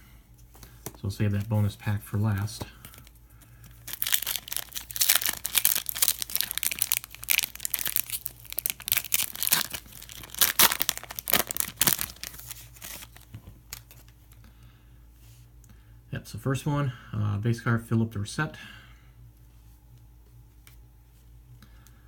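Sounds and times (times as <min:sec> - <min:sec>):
plastic wrapper tearing and crinkling: 0:03.8 - 0:14.1.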